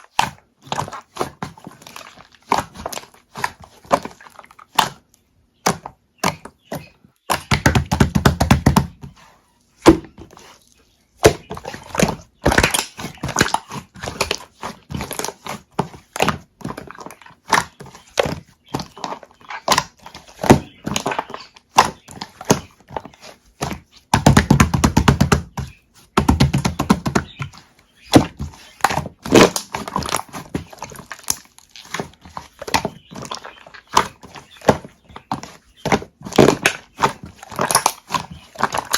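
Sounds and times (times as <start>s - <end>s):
slime squishing and popping: 11.2s - 22.7s, 28.1s - 38.9s.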